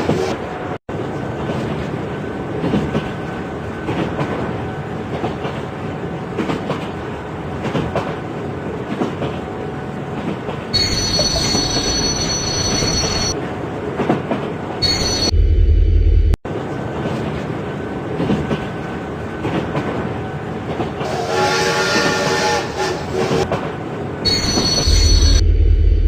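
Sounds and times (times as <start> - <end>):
train rumbling on rails: 0.0 - 26.0
high wheel squeal: 24.3 - 25.4.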